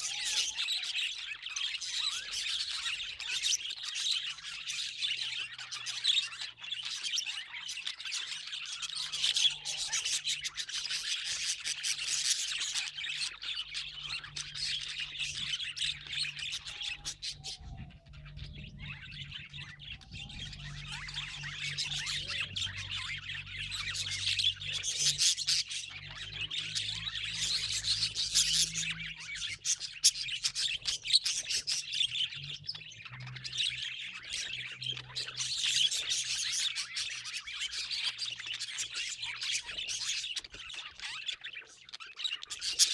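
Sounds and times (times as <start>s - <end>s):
budgerigars chirping and twittering: 0.0s - 42.9s.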